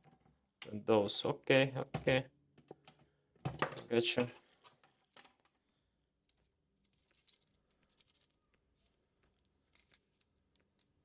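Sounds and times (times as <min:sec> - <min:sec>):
faint small clicks and rustles: 0:04.4 - 0:11.0.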